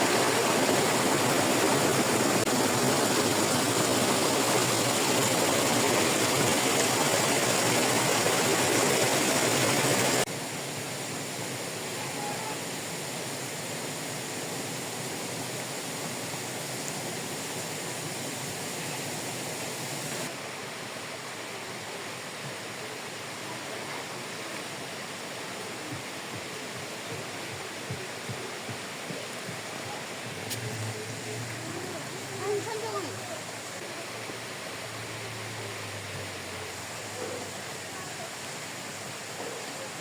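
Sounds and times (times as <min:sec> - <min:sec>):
flowing water rushing: 0:00.0 - 0:40.0.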